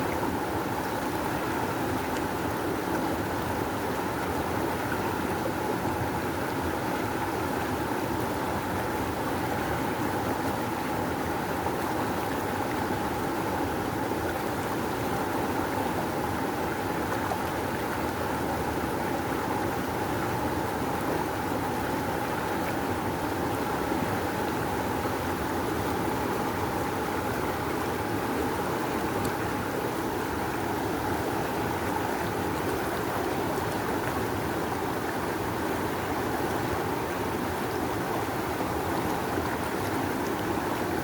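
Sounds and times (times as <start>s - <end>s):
river water rushing: 25.0s - 41.0s.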